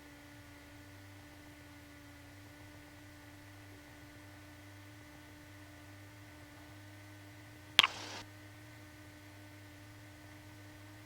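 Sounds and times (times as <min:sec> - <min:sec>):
radio squelch click and static: 0:07.8 - 0:08.2.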